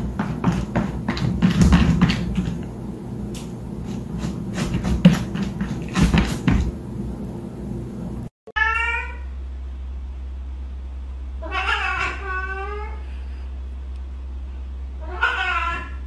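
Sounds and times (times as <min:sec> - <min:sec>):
cat meowing: 0:08.5 - 0:09.3, 0:11.4 - 0:13.0, 0:15.0 - 0:16.0.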